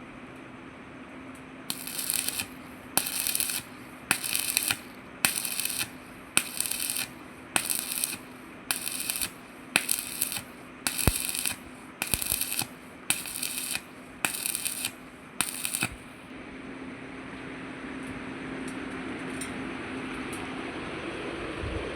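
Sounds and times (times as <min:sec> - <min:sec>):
sharp arc strike click: 0:01.7 - 0:16.0
welding arc crackling: 0:01.7 - 0:16.3.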